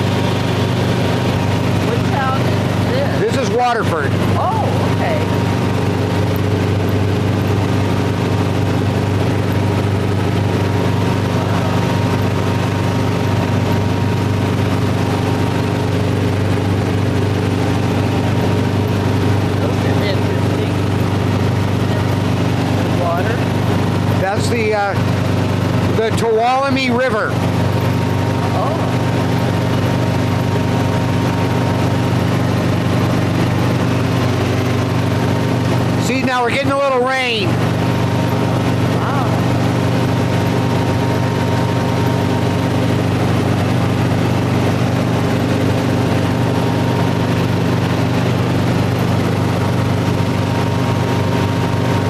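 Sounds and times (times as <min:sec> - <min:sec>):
helicopter engine and rotor drone: 0:00.0 - 0:52.0.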